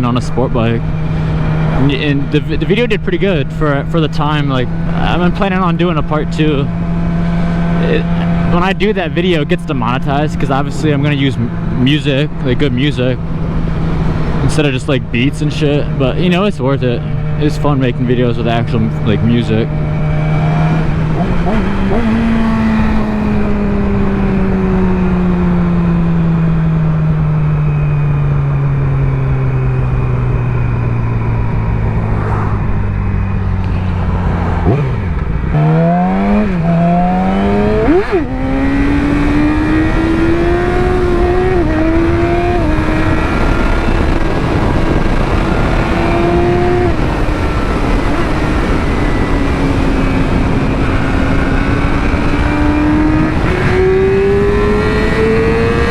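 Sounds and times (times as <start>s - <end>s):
motorcycle engine revving: 0.0s - 55.9s
wind noise: 0.0s - 55.9s.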